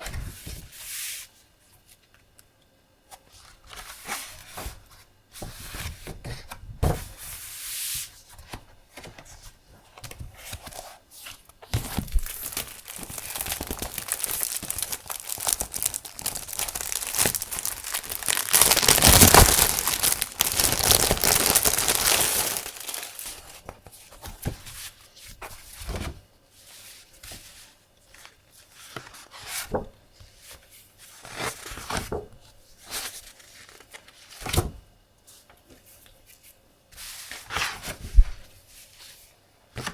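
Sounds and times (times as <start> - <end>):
packaging rustling and crinkling: 11.8 - 24.6.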